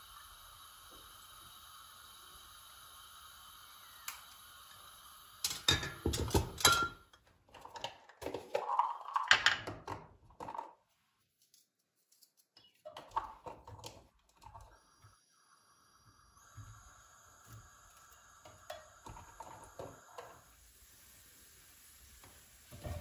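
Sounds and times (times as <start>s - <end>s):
utensils and cookware clicking: 5.4s - 10.8s.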